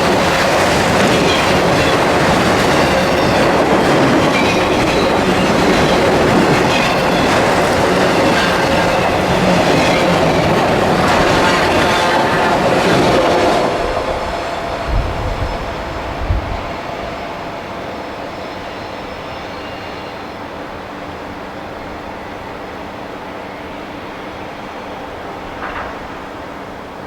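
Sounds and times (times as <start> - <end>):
train wheels clicking over rail joints: 0.0 - 17.3, 25.3 - 27.0.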